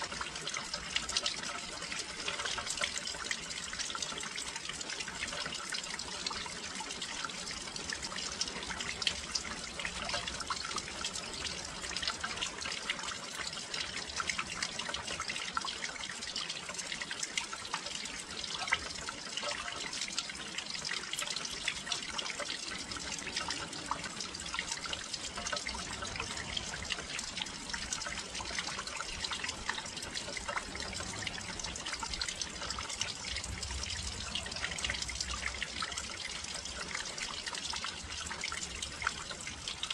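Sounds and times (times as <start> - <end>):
rain pattering on windowsill: 16.5 - 39.9.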